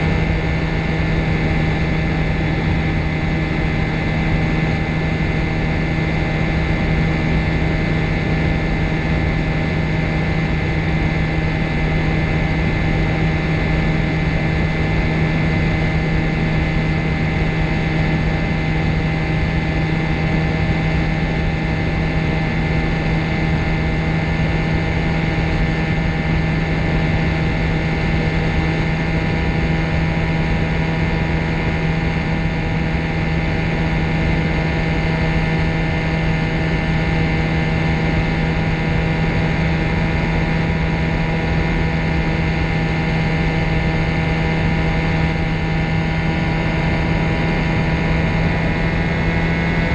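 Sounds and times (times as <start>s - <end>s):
light aircraft engine droning: 0.0s - 49.9s.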